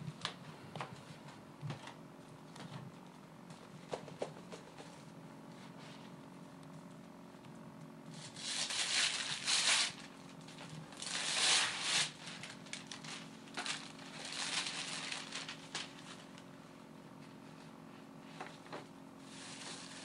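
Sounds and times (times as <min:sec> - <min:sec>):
wrapping paper tearing and crumpling: 0:08.1 - 0:16.4, 0:19.3 - 0:20.0.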